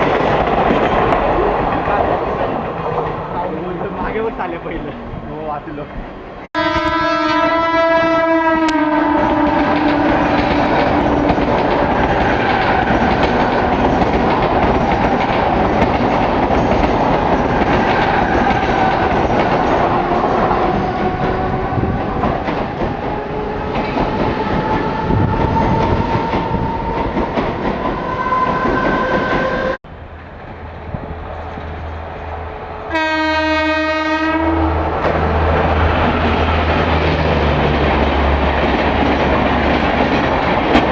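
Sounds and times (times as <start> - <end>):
train rumbling past: 0.0 - 40.9
train wheels rushing on rails: 0.0 - 40.9
train horn: 6.6 - 11.4, 28.0 - 29.8, 32.9 - 35.0.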